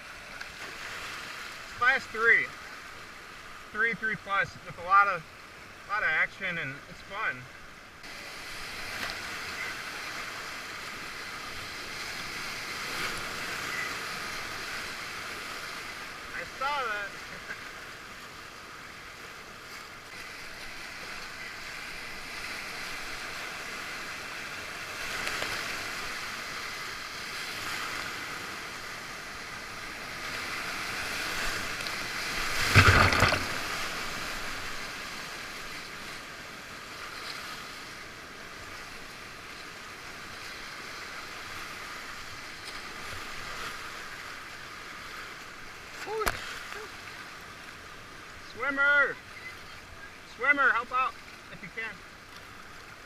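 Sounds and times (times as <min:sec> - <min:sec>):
river rapids rushing: 0:00.0 - 0:19.3, 0:20.0 - 0:53.0
loud sudden splash: 0:32.5 - 0:34.0.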